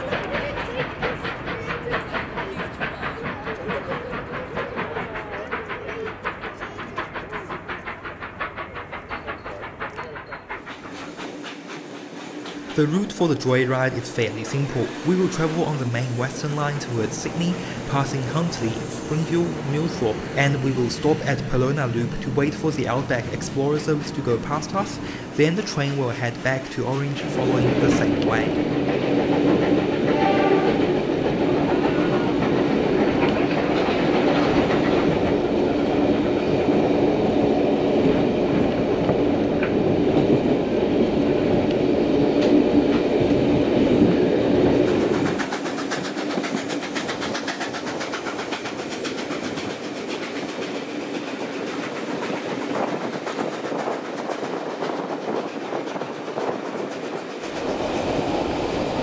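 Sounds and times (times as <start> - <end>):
train carriage running on rails: 0.0 - 59.0
wheels clicking over track: 44.0 - 59.0.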